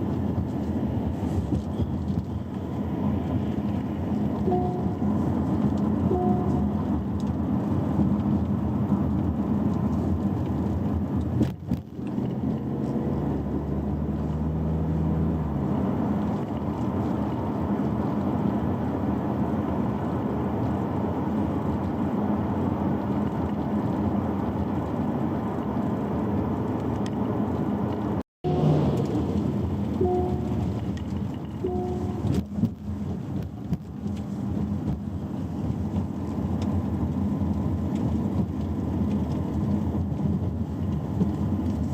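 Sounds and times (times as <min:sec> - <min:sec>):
road and tyre noise in car: 0:00.0 - 0:41.9
short beep: 0:28.4 - 0:28.8, 0:30.0 - 0:30.5, 0:31.6 - 0:32.3.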